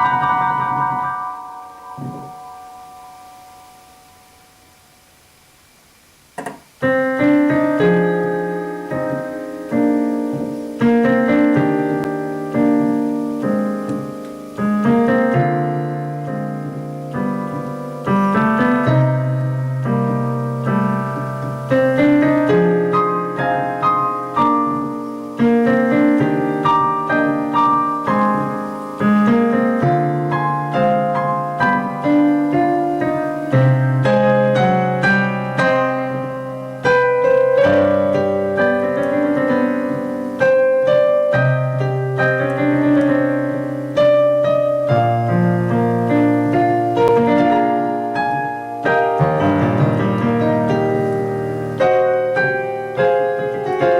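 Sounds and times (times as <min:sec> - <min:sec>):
piano music: 0:00.0 - 0:05.2, 0:06.4 - 0:53.9.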